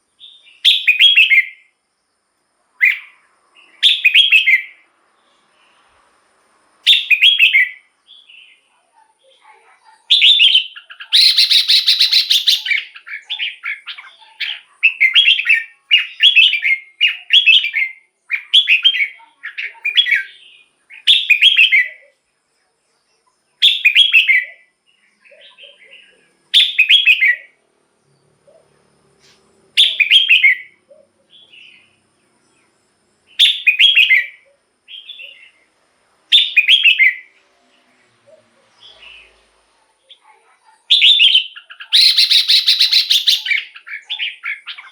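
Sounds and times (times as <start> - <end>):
bulbul singing: 0.0 - 1.8, 2.8 - 5.8, 6.8 - 8.7, 10.1 - 22.2, 23.2 - 28.7, 29.7 - 39.5, 40.9 - 44.9.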